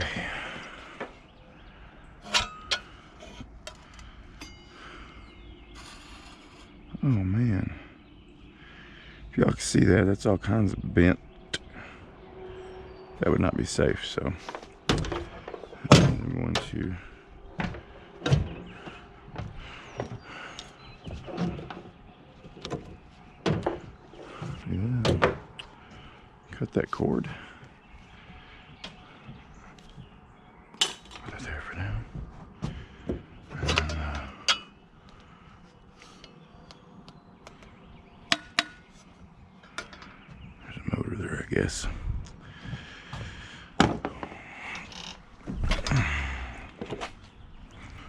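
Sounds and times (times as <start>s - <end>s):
metal scrap parts clicking: 2.2s - 4.6s.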